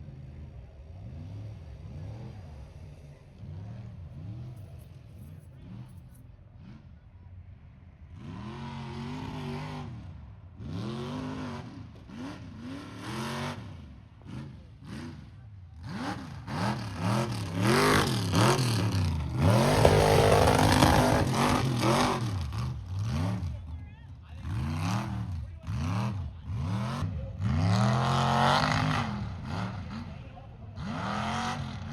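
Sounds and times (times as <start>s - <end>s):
truck engine revving: 8.1s - 23.8s, 24.4s - 31.9s.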